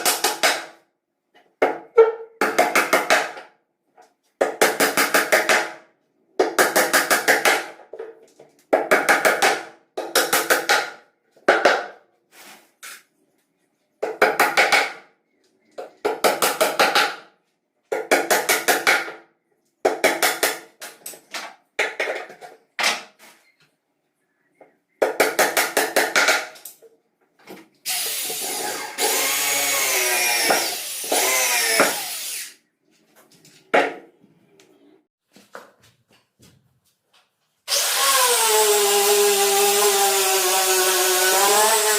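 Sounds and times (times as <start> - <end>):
cordless drill bursts: 27.9 - 32.6.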